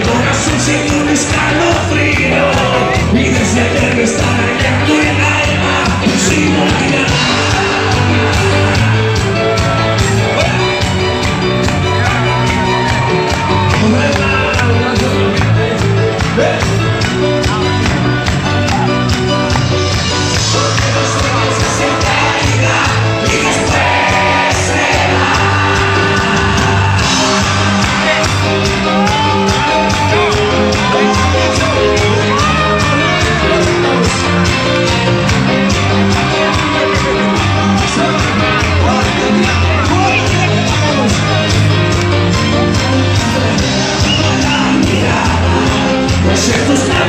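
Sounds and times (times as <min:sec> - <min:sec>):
person singing verses: 0:00.0 - 0:09.2, 0:20.4 - 0:34.5
crowd shouting and singing along: 0:00.0 - 0:47.0
live band music: 0:00.0 - 0:47.0.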